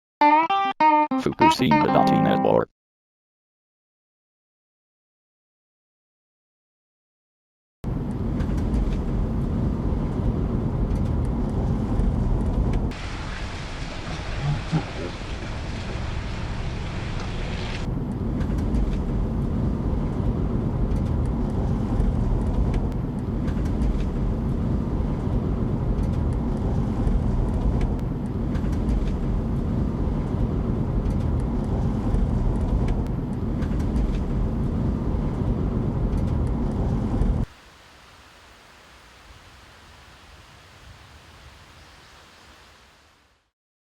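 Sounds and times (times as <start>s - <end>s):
car road noise: 7.9s - 37.5s.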